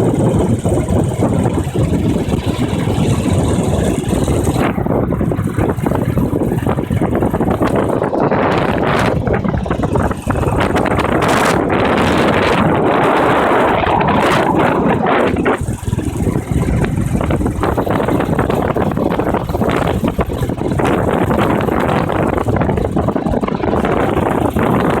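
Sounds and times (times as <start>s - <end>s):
road noise: 0.0s - 25.0s
wind roaring over microphone: 0.0s - 25.0s.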